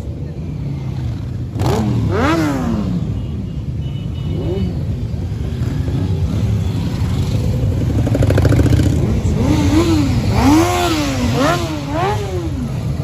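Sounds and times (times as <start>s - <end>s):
motorcycle engines idling: 0.0s - 13.0s.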